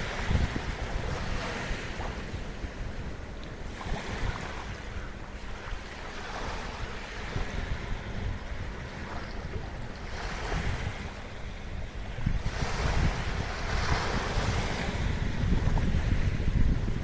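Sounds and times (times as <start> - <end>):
small waves washing ashore: 0.0 - 17.0
wind buffeting microphone: 0.0 - 17.0.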